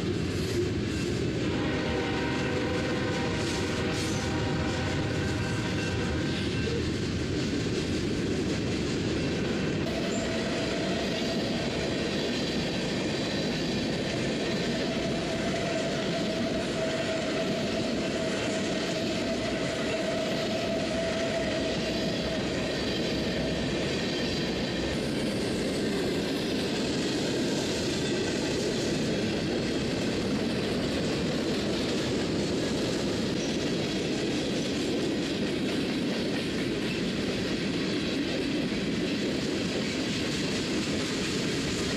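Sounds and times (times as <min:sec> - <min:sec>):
freight train rumbling: 0:00.0 - 0:41.9.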